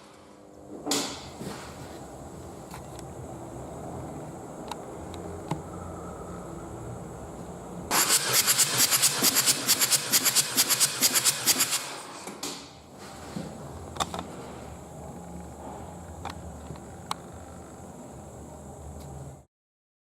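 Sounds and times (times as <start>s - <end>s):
low hum: 1.3s - 7.9s.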